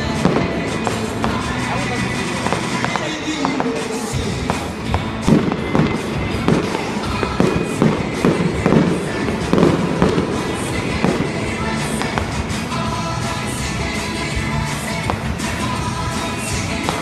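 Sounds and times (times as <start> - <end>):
background music: 0.0 - 17.0
fireworks booming and crackling: 0.0 - 17.0.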